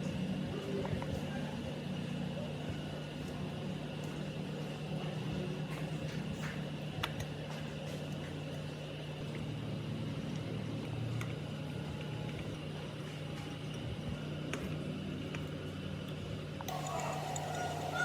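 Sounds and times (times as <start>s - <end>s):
water pump motor humming: 16.7s - 18.0s.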